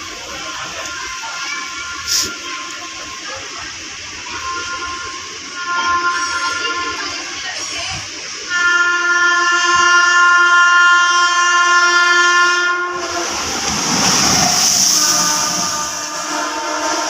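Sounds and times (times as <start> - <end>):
locomotive horn blast: 4.2 - 7.3, 8.5 - 17.0
locomotives rushing past: 12.9 - 17.0.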